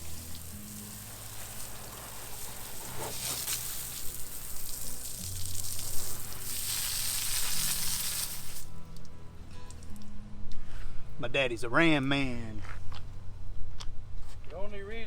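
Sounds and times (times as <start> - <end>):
water spraying on a truck: 0.0 - 10.0.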